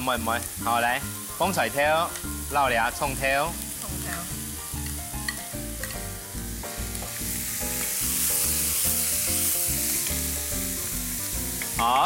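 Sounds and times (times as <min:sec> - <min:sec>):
food sizzling in a hot pan: 0:00.0 - 0:12.0
soft background music: 0:00.0 - 0:12.0.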